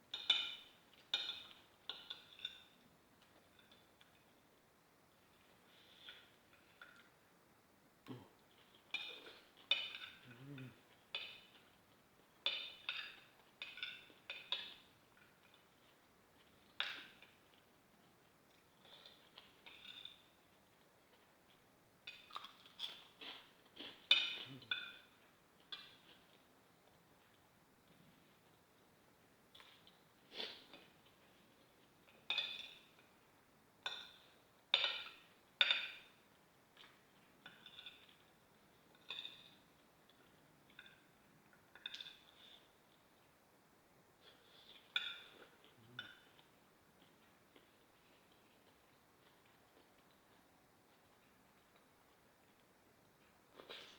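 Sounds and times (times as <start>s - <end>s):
cutlery clinking on a plate: 0.1s - 4.2s, 8.6s - 10.2s, 11.1s - 11.8s, 12.4s - 15.6s, 22.1s - 26.3s, 32.1s - 33.2s, 33.8s - 36.2s, 36.8s - 38.3s, 38.9s - 39.6s, 41.7s - 42.7s, 44.3s - 46.4s
metal spoon clinking on a plate: 0.1s - 4.2s, 8.9s - 10.2s, 32.2s - 33.0s, 33.8s - 36.2s, 44.8s - 46.4s.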